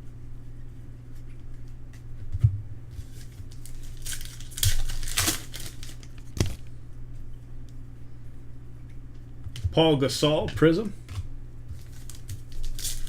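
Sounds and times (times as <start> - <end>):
wrapper tearing and crinkling: 3.0 - 6.7, 11.8 - 13.0.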